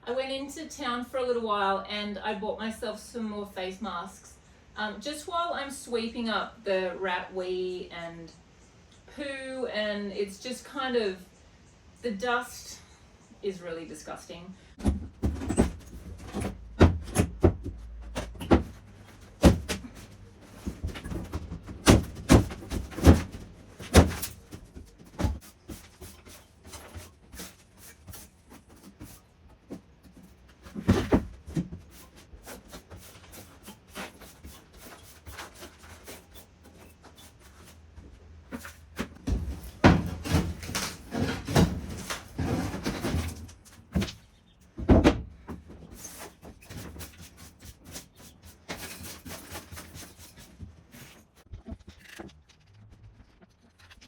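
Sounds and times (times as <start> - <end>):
knocks bumps and scrapes: 14.7 - 54.0.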